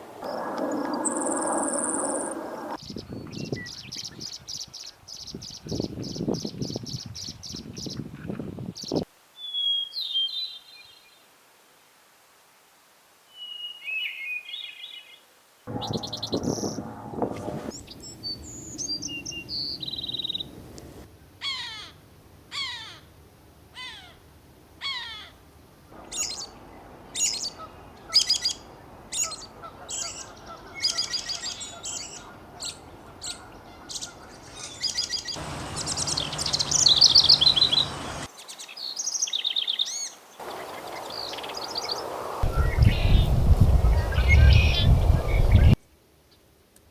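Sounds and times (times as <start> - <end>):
wild birds calling and singing: 0.2 - 9.0, 14.2 - 20.5, 26.0 - 45.8
rapid bird trilling song: 0.7 - 8.0, 26.1 - 45.8
bird falling call: 29.2 - 38.3.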